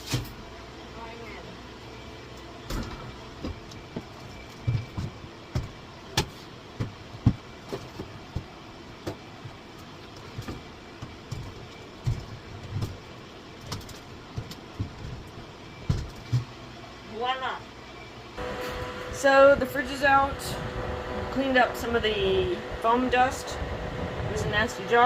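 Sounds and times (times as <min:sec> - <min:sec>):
knocks bumps and clunks: 0:02.6 - 0:16.6.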